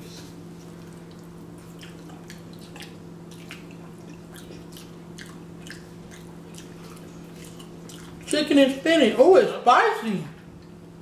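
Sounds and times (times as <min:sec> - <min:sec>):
people chewing with wet smacking: 0:00.0 - 0:08.3.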